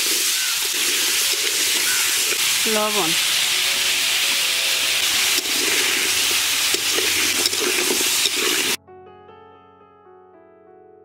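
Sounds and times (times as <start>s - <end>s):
potatoes sizzling in oil: 0.0s - 8.8s
stirring clicks: 0.0s - 8.8s
quiet piano music: 0.9s - 11.0s.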